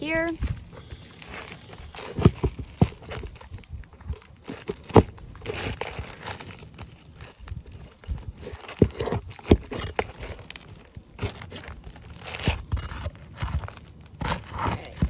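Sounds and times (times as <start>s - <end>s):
shingles tearing and scraping: 0.1s - 15.0s.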